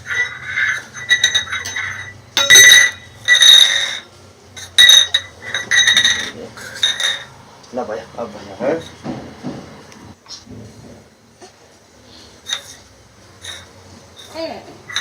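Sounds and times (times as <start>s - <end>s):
ringing clinking: 0.0s - 7.3s.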